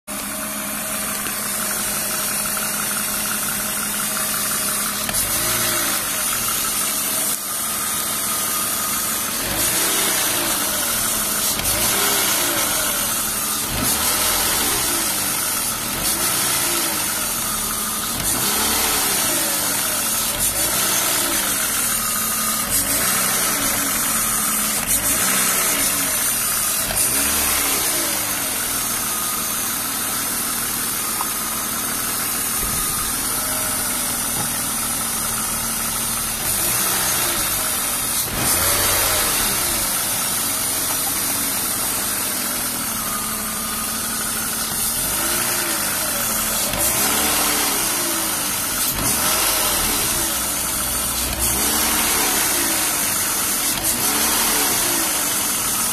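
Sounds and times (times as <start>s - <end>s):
car engine idling: 0.0s - 55.9s
engine rattle: 0.0s - 55.9s.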